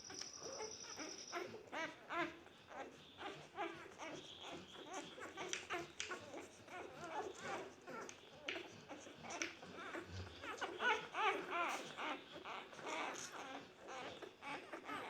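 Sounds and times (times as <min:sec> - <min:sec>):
thin steady high tone: 0:00.0 - 0:01.6
puppies squeaking and whimpering: 0:00.0 - 0:15.0.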